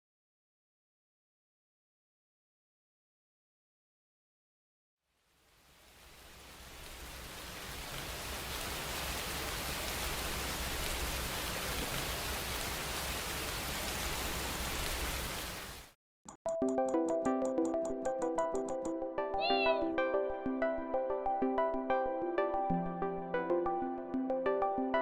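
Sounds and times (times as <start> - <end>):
rain hissing: 5.2 - 16.0.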